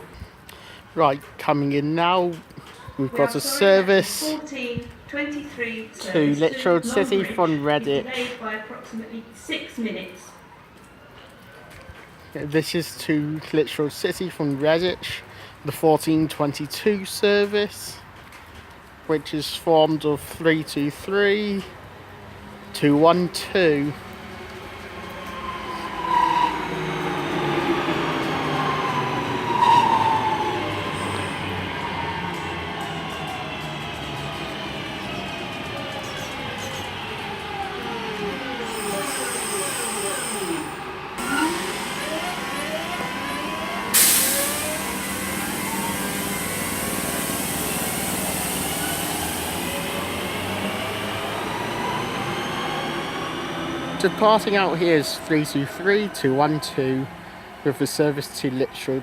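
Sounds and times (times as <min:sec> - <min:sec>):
electric train whine: 0:23.6 - 0:57.6
train brake squeals: 0:29.5 - 0:32.0, 0:38.6 - 0:42.6.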